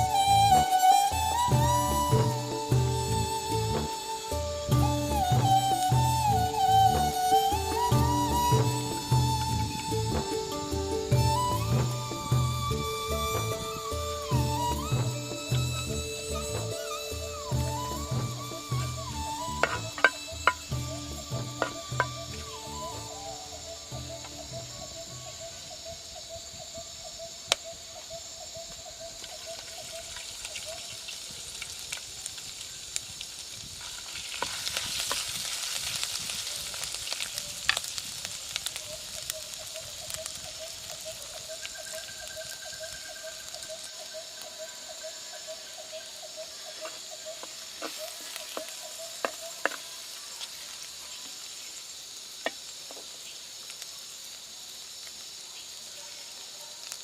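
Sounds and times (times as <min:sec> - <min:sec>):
food sizzling in oil: 0:00.3 - 0:25.8, 0:29.2 - 0:57.0
utensil knocking on pan: 0:19.6 - 0:20.6
stirring in a pan: 0:46.8 - 0:50.8.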